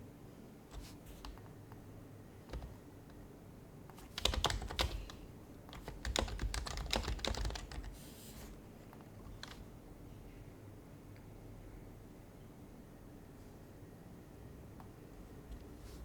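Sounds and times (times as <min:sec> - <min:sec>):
keyboard typing: 0:00.7 - 0:01.5, 0:02.5 - 0:02.8, 0:03.9 - 0:08.0, 0:09.2 - 0:09.6.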